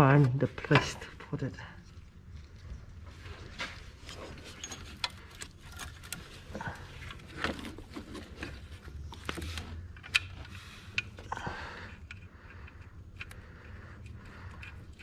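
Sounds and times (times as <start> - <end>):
metal tools clicking and clinking: 4.4 - 6.2.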